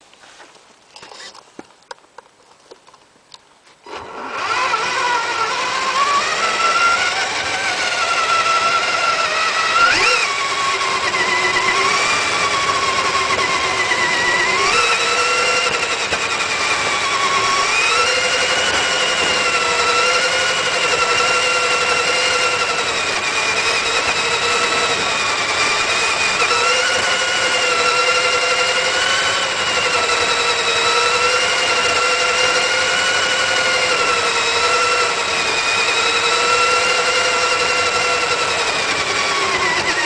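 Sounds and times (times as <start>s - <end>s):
faint clicks: 0.1s - 3.8s
radio-controlled truck motor whine: 3.8s - 40.0s.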